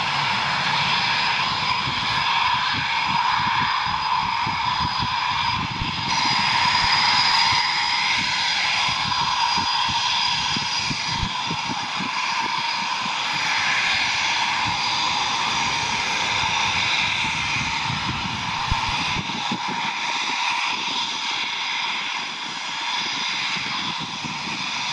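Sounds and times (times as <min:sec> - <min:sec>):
jet engines whining and rumbling: 0:00.0 - 0:24.9.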